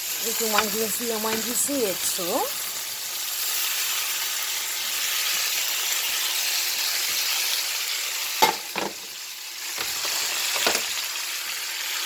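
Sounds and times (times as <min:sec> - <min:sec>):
chicken sizzling in a pan: 0:00.0 - 0:12.0
utensil knocking on pan: 0:08.4 - 0:09.1.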